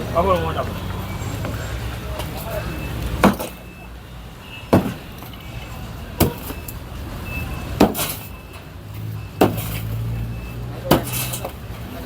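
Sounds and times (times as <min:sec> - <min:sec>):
loud knocks: 0:04.7 - 0:05.0.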